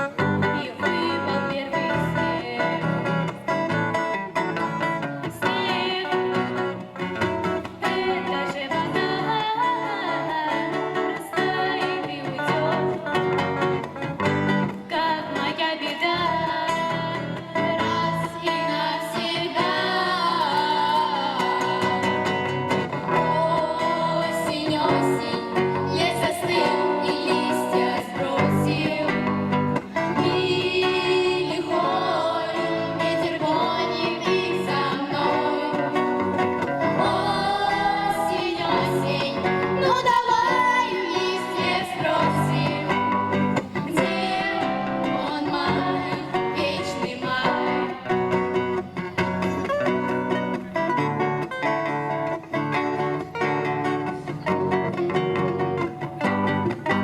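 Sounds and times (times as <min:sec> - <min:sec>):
girls singing: 0:00.0 - 0:03.5, 0:05.3 - 0:06.9, 0:07.6 - 0:13.4, 0:14.6 - 0:48.9
guitar accompaniment: 0:00.0 - 0:57.0.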